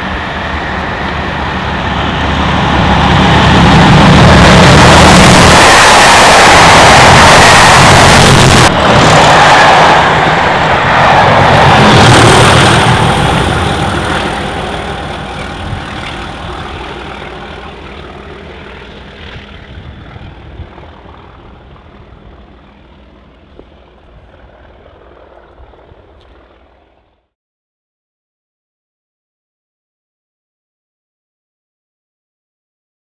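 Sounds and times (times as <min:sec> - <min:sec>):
train wheels on rails: 0:00.0 - 0:18.2
diesel engine noise: 0:00.0 - 0:27.0.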